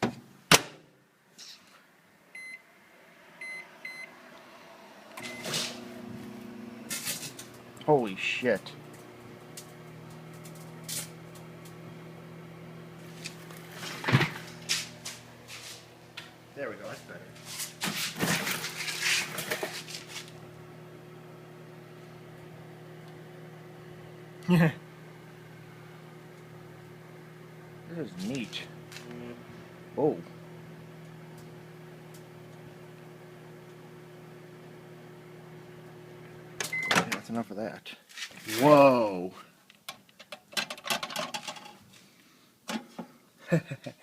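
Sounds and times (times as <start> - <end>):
microwave oven humming: 2.3 - 37.3
keypad beeps: 5.2 - 5.5, 36.7 - 37.0.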